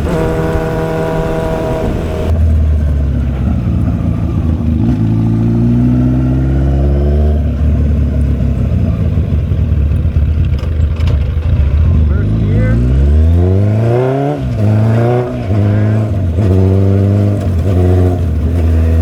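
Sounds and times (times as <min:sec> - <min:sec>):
wind on microphone: 0:00.0 - 0:02.6
motorcycle engine accelerating: 0:00.0 - 0:19.0.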